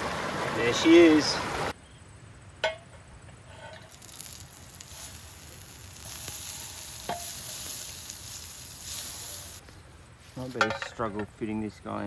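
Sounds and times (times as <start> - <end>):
frying sizzle: 3.8 - 9.6.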